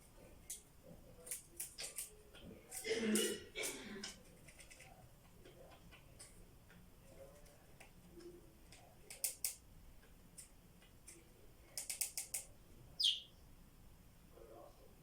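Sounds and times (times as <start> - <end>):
budgies clicking: 11.8 - 13.3
budgie chirp falling in pitch: 13.0 - 13.4.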